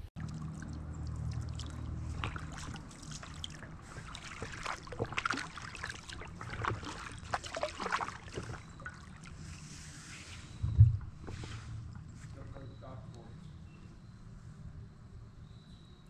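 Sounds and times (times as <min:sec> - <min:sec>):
paddle splashing in water: 0:00.2 - 0:12.5
water trickling off paddle: 0:00.2 - 0:13.7.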